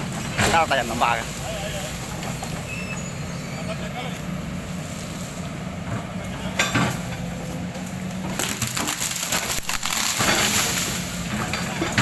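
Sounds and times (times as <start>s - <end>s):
tree trunk cracking and splintering: 8.2s - 11.4s.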